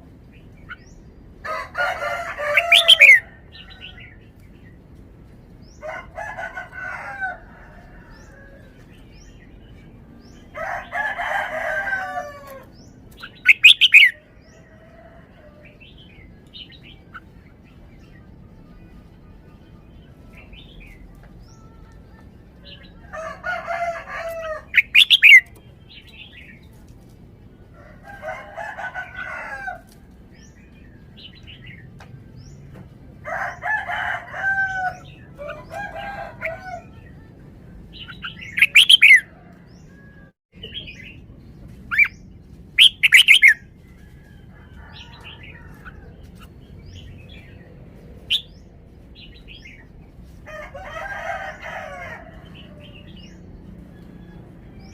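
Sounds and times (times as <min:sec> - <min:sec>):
bird warbling song: 0:02.4 - 0:04.8, 0:12.2 - 0:14.8, 0:24.0 - 0:26.7, 0:37.9 - 0:39.9, 0:41.8 - 0:43.7.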